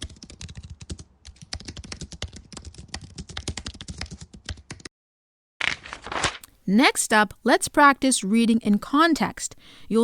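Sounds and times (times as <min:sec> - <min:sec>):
rapid keyboard typing: 0:00.0 - 0:04.9.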